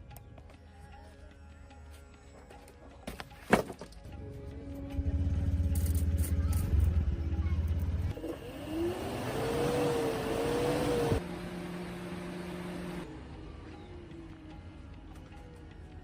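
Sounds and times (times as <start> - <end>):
tractor engine rumbling and revving: 4.1 - 15.4.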